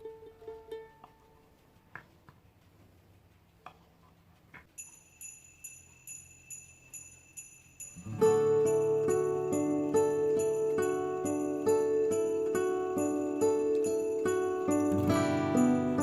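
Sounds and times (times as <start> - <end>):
music track: 0.0 - 1.9, 8.0 - 16.0
high jingling bell pattern: 4.7 - 16.0.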